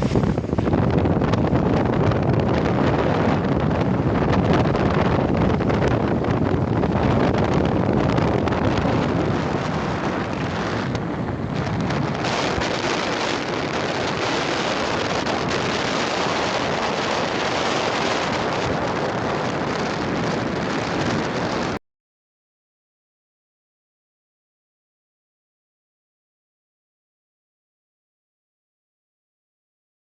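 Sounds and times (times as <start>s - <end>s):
wind buffeting microphone: 0.0s - 21.8s.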